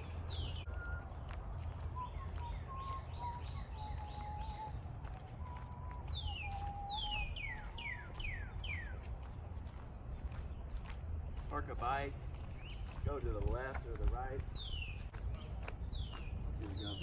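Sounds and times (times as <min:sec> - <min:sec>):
birds chirping: 0:00.0 - 0:17.0
short whistled bird notes: 0:05.4 - 0:08.9.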